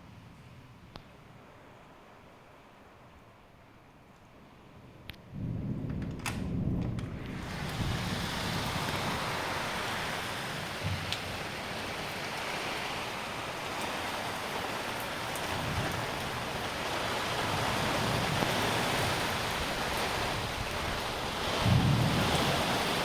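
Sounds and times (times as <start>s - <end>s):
heavy rain falling: 5.3s - 23.0s.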